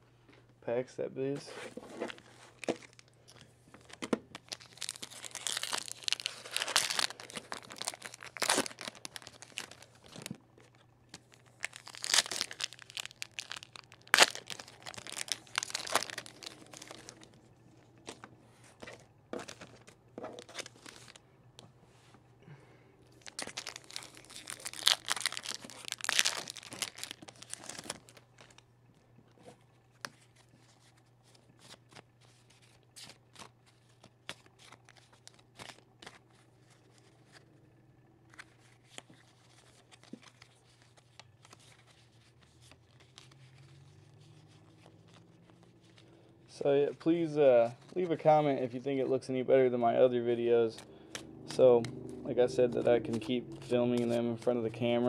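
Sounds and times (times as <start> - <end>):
cards being handled: 1.4 - 21.2, 30.0 - 37.5, 38.3 - 46.1, 52.6 - 55.0
foil packs tearing and crinkling: 2.0 - 17.4, 18.0 - 21.2, 23.1 - 28.6, 30.2 - 37.4, 38.4 - 46.1.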